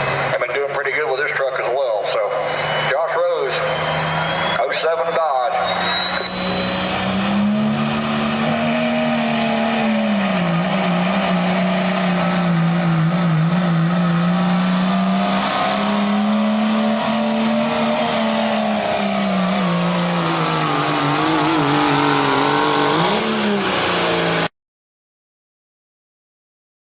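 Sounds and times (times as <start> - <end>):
high whine: 0.0 - 24.5
truck engine under load: 0.0 - 24.5.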